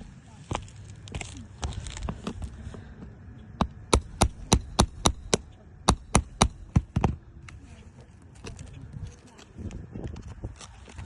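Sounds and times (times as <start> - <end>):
hammer striking nails: 3.6 - 7.2.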